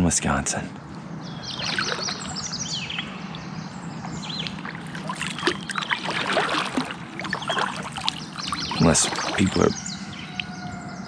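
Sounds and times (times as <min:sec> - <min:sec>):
birds chirping and whistling: 0:00.8 - 0:11.0
kayak paddle in water: 0:01.4 - 0:10.2.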